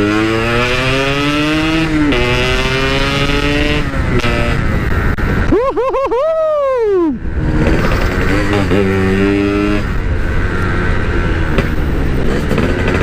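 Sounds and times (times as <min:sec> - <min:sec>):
road noise: 0:00.0 - 0:13.0
two-stroke motorcycle engine: 0:07.4 - 0:13.0.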